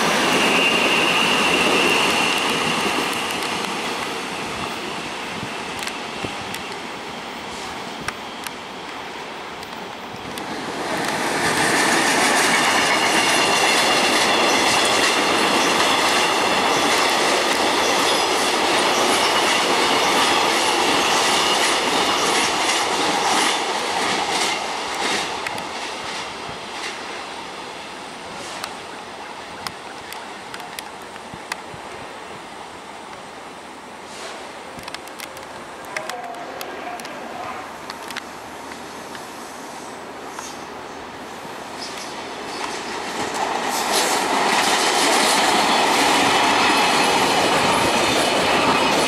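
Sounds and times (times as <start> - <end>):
train rolling noise: 0.0 - 49.0
high-pitched wheel squeal: 0.1 - 2.5.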